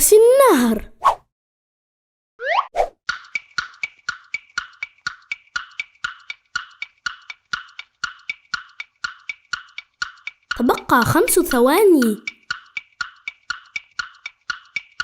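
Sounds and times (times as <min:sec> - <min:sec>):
wooden tick-tock timer: 0:03.1 - 0:15.0.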